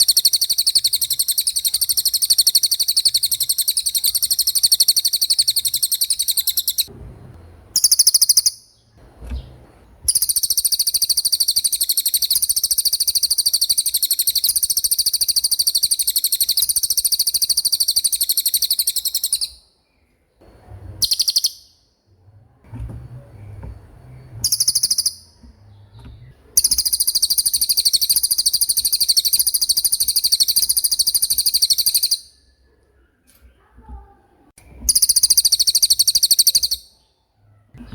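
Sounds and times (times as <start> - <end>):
songbird high rapid trill: 0.0 - 6.9, 10.1 - 19.5, 26.6 - 32.2.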